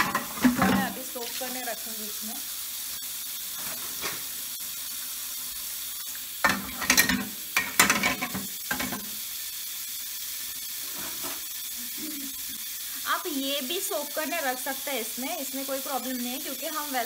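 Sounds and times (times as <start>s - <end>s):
metal parts clanking in sink: 0.0s - 1.1s, 6.4s - 9.1s
tap water running into sink: 0.0s - 17.0s.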